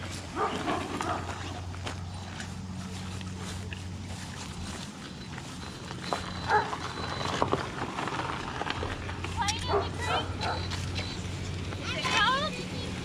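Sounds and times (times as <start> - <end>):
steady low hum: 0.0 - 11.9
dog barking: 0.4 - 1.3, 6.4 - 6.8, 9.6 - 10.7.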